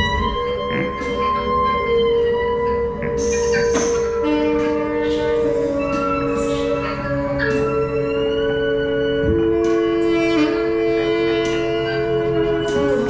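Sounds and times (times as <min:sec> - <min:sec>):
long held wind instrument notes: 0:00.0 - 0:13.0.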